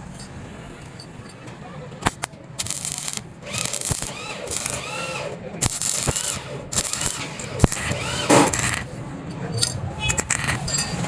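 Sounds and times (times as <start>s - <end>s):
sharp clicks: 2.0s - 8.9s
metal scraping on metal: 5.8s - 11.0s.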